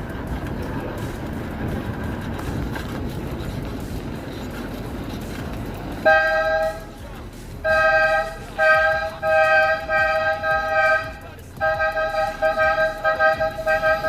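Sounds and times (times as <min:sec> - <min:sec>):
road and wind rumble: 0:00.0 - 0:14.0
two-tone vehicle horn honk: 0:06.0 - 0:07.0, 0:07.6 - 0:14.0.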